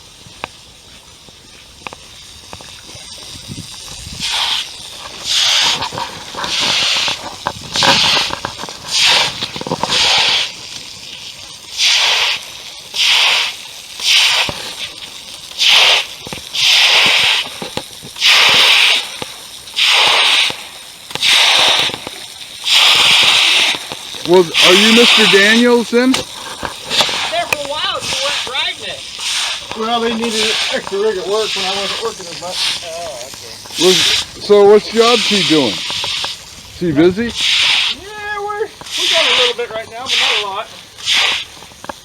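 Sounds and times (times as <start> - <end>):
footsteps on muddy ground: 23.6 - 38.0.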